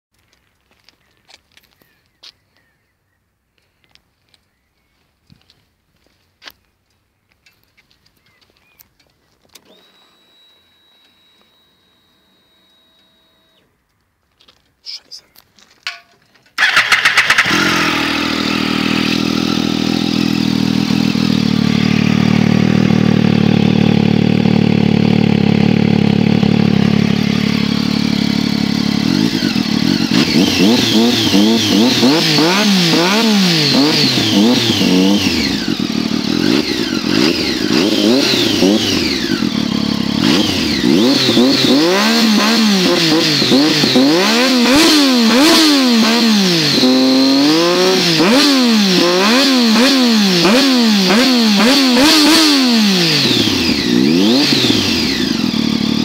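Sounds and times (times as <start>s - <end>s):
motorcycle engine starting and idling: 8.2s - 14.0s, 15.8s - 56.0s
engine revving in throttle blips: 16.6s - 56.0s.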